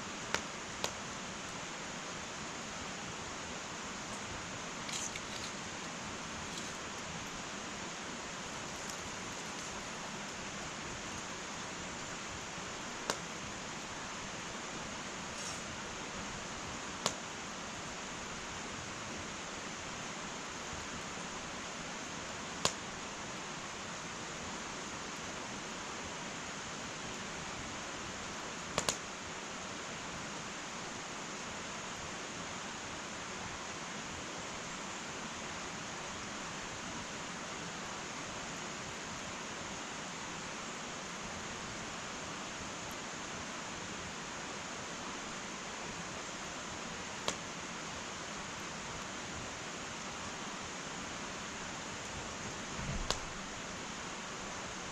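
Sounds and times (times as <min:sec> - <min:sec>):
wood fire hissing: 0:00.0 - 0:54.9
wood crackling and popping: 0:04.0 - 0:07.6, 0:08.3 - 0:12.2, 0:52.7 - 0:53.6.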